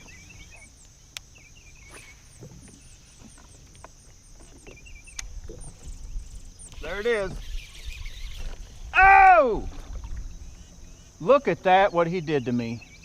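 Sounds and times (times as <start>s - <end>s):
birds chirping and warbling: 0.0s - 9.0s, 9.6s - 13.0s
insect drone: 0.0s - 13.0s
sharp clicks: 5.1s - 5.3s.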